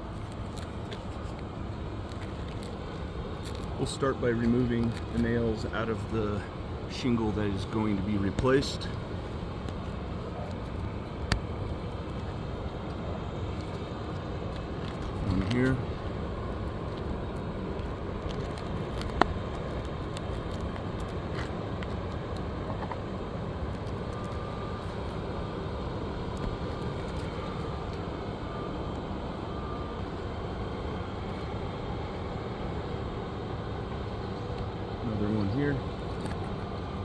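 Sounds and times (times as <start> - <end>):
traffic-like background noise: 0.0 - 37.0.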